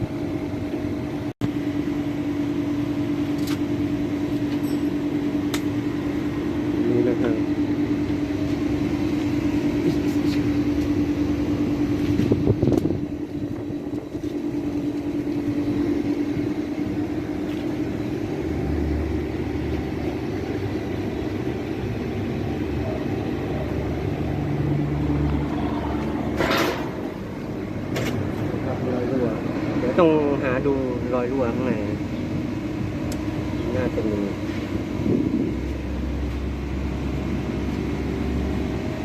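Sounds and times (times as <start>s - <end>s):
steady machine hum: 0.0s - 39.0s
deep rumble: 32.0s - 37.3s.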